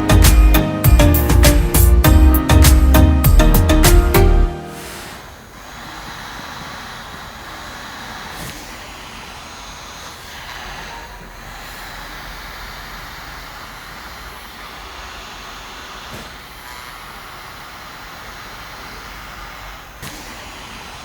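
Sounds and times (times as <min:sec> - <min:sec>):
air conditioner fan blowing: 0:03.7 - 0:21.0.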